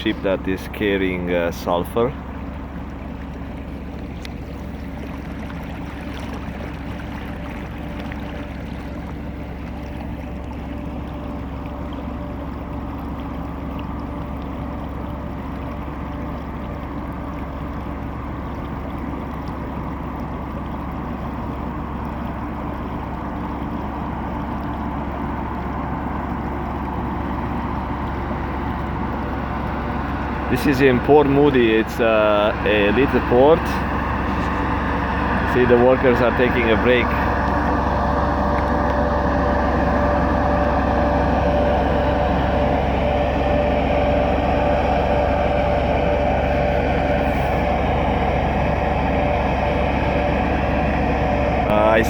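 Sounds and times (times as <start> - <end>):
low machinery hum: 0.0 - 52.0
water noise: 0.0 - 52.0.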